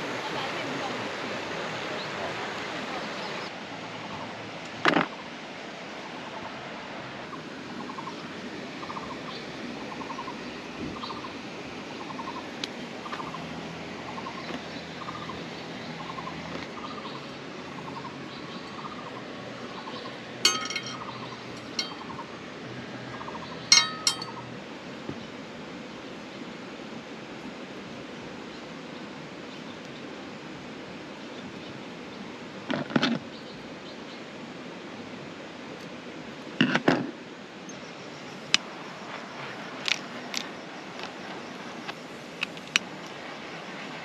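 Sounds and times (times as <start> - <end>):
steady background hiss: 0.0 - 44.0
metallic clinks: 20.4 - 22.1, 23.7 - 24.5.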